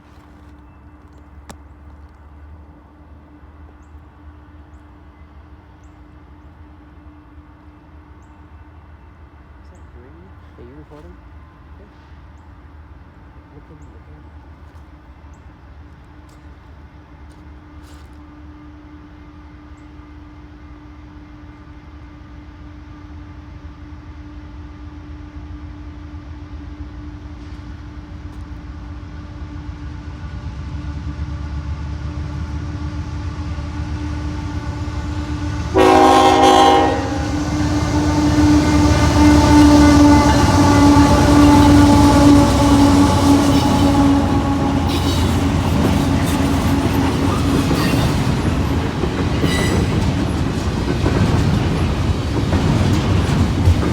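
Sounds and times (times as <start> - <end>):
diesel locomotive engines: 0.0 - 53.9
locomotive horn blast: 34.1 - 47.3.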